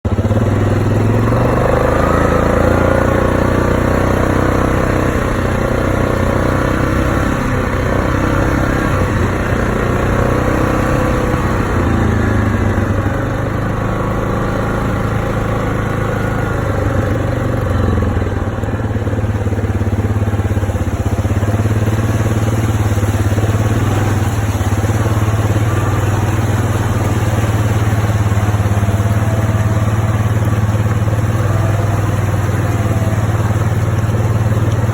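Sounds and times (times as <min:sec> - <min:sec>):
vehicle engine running: 0:00.0 - 0:34.9.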